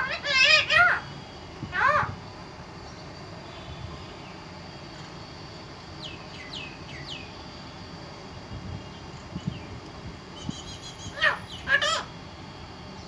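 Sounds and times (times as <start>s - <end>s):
parrot chirping: 0.0s - 1.1s, 1.7s - 2.1s, 10.9s - 12.1s
steady background hiss: 0.0s - 13.0s.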